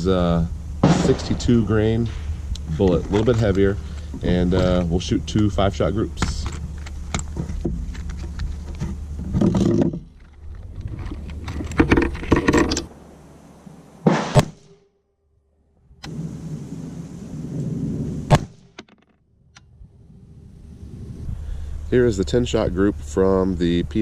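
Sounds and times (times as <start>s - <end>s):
sharp knocks: 0.8s - 2.3s
gear clunking and rustling: 0.8s - 12.9s.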